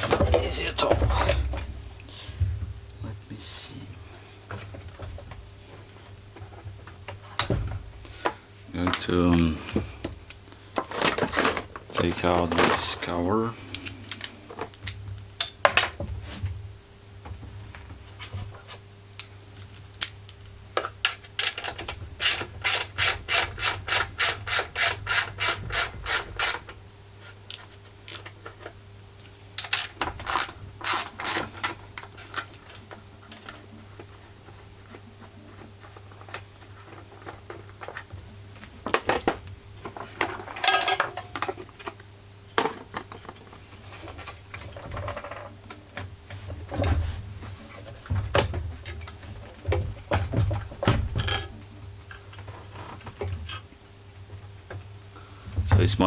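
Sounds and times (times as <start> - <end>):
ratchet wrench clicking: 29.8 - 31.4
metal parts handled: 40.2 - 41.5.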